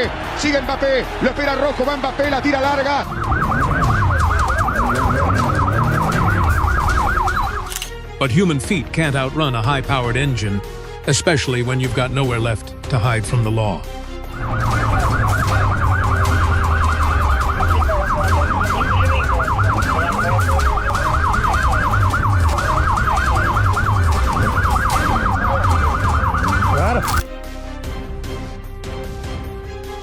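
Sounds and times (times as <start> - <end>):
background music with bass line: 0.0 - 30.0
police siren wailing: 2.4 - 7.9, 14.2 - 27.2.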